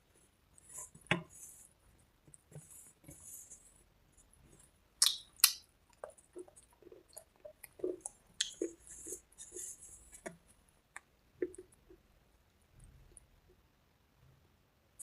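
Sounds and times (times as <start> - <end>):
sharp snaps: 5.0 - 5.6
crunching and chewing: 5.0 - 11.8.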